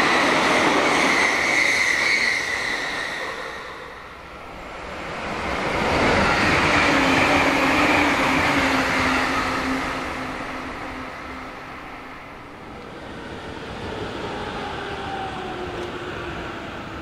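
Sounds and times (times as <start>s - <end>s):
train wheels rushing on rails: 4.6s - 11.8s.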